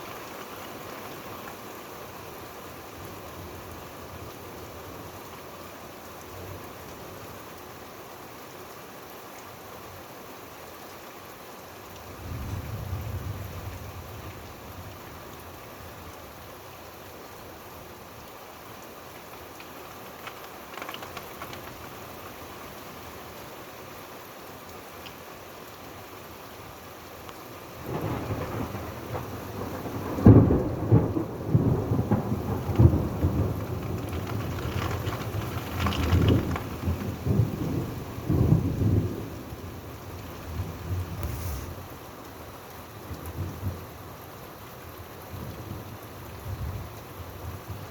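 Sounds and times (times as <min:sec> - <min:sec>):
rain falling: 0:00.0 - 0:47.9
thunder crack and rumble: 0:27.8 - 0:39.7.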